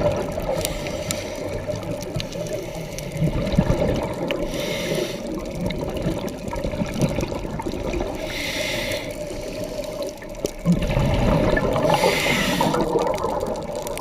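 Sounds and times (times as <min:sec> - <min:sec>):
exhaled bubbles churning: 0:00.0 - 0:14.0
breath hissing through regulator: 0:00.5 - 0:01.6, 0:04.4 - 0:05.5, 0:08.1 - 0:10.1, 0:11.3 - 0:13.1.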